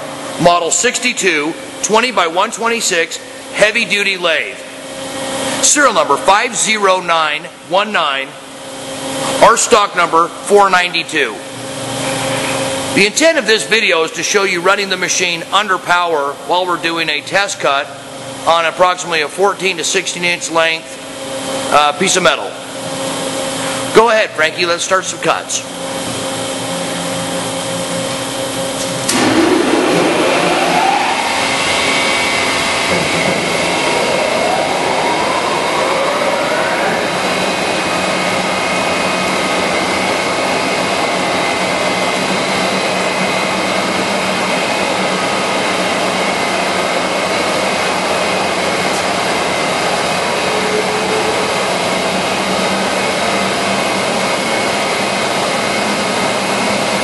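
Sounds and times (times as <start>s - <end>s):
lathe gear whine: 0.0s - 15.6s, 24.8s - 57.0s.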